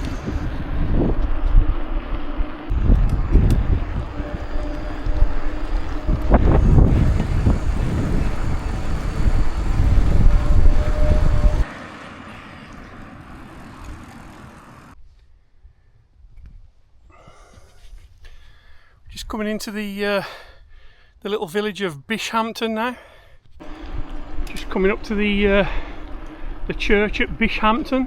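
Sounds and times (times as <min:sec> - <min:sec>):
wind buffeting microphone: 0:00.0 - 0:11.7.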